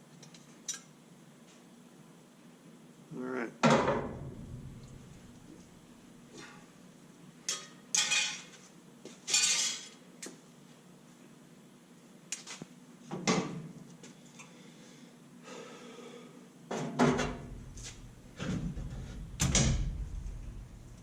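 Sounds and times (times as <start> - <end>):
low rumble: 4.0 - 6.0, 17.4 - 21.0
tools and sheet metal clanking: 7.5 - 8.5, 9.3 - 10.0, 16.7 - 20.7.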